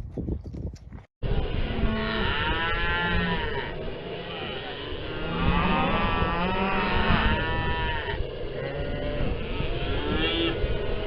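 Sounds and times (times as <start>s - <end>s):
cattle bawling: 1.3s - 11.0s.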